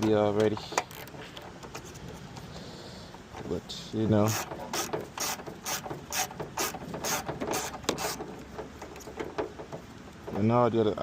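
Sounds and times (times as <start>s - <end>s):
mechanical ratcheting: 4.2s - 9.6s.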